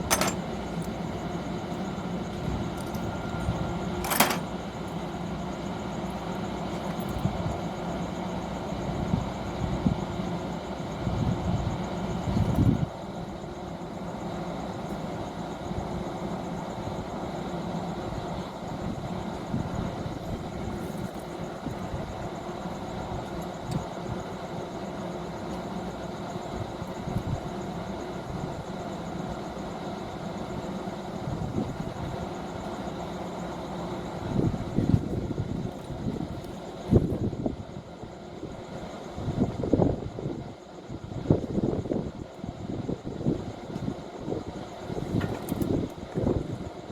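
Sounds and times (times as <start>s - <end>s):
machinery humming: 0.0s - 6.8s.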